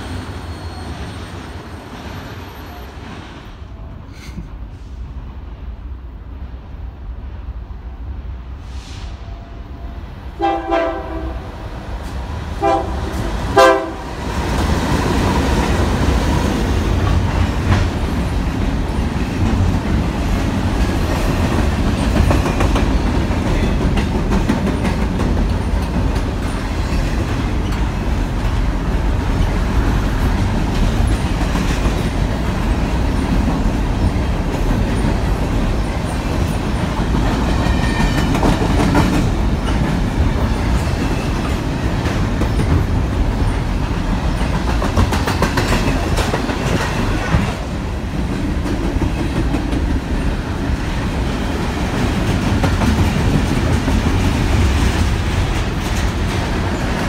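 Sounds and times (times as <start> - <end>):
train rumbling past: 0.0 - 57.0
train horn blasts: 10.4 - 11.6, 12.6 - 14.2
wheels clacking over rail joints: 12.0 - 47.7.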